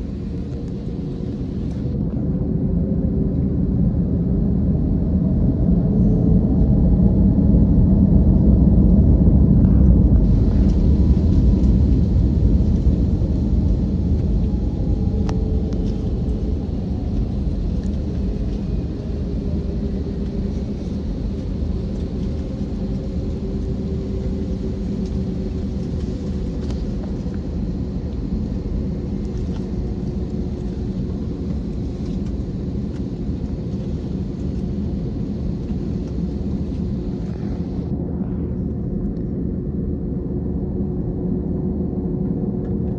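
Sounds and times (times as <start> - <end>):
faint drifting whine: 0.0 - 3.4, 9.6 - 40.1
jet engine rumble inside cabin: 0.0 - 42.9.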